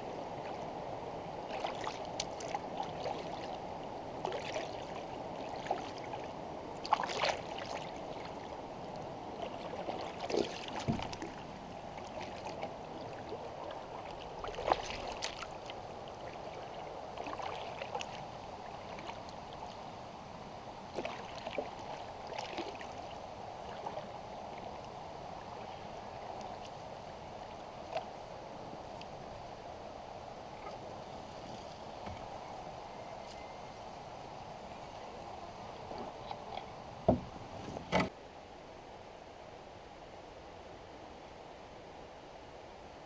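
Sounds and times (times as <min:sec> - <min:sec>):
rushing water: 0:00.0 - 0:33.4
paddle splashes and drips: 0:01.5 - 0:19.9, 0:20.8 - 0:28.2.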